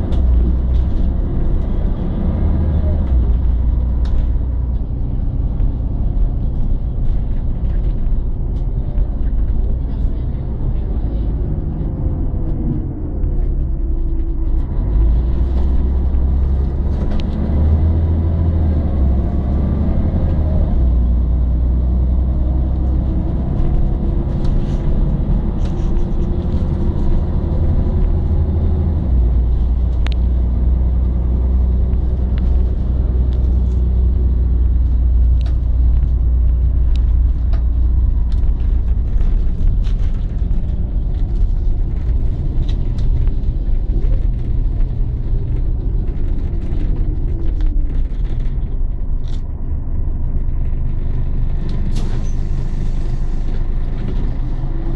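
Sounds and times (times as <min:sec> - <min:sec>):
diesel bus engine rumbling: 0:00.0 - 0:54.9.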